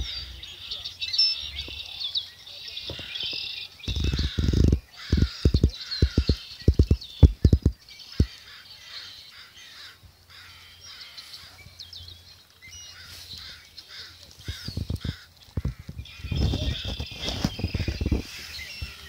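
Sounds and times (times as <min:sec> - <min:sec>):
birds calling harshly: 0:00.0 - 0:19.0
low thumps: 0:03.9 - 0:08.3.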